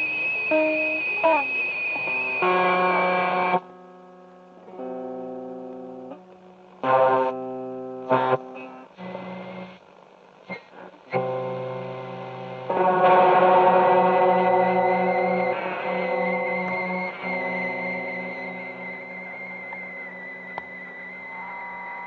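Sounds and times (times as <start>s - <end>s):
guitar chords ringing: 0.0s - 9.8s, 10.5s - 22.0s.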